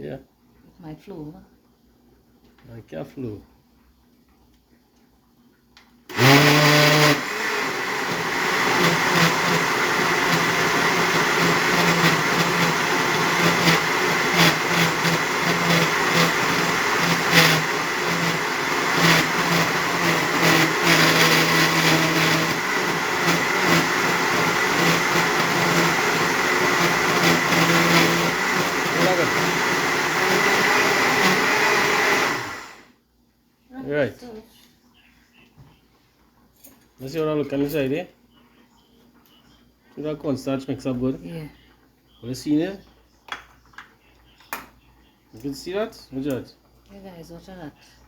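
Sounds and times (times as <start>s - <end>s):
electric blender motor running: 6.1s - 32.9s.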